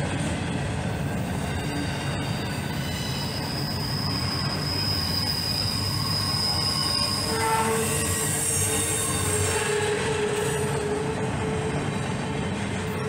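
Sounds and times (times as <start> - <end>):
train wheels rumbling on rail: 0.0 - 13.0
high wheel squeal: 1.1 - 12.2.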